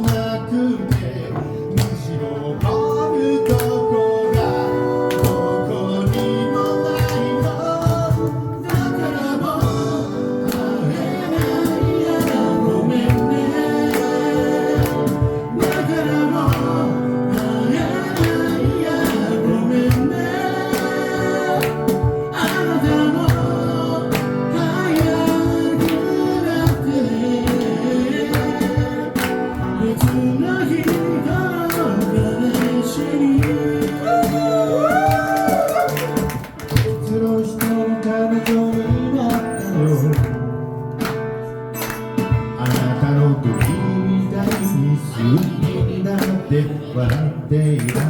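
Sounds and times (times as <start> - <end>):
drum beat: 0.0 - 37.9
person singing: 0.0 - 40.4, 42.6 - 48.0
guitar: 0.0 - 48.0.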